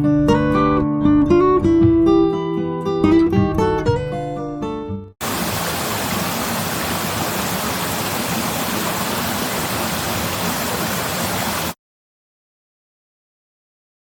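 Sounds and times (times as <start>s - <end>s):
steady rushing noise: 5.2s - 11.8s.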